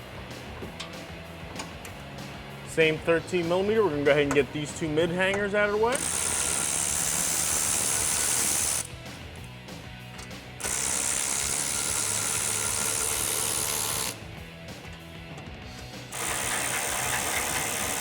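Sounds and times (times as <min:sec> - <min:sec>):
ratchet turning bolts: 0:05.2 - 0:08.9, 0:10.2 - 0:14.2, 0:15.8 - 0:18.0.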